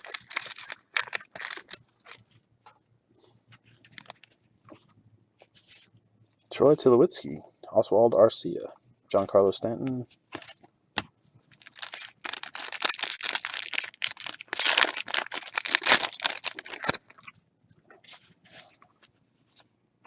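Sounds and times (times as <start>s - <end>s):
trading cards and packaging rustling: 0.0s - 2.4s, 11.5s - 17.3s.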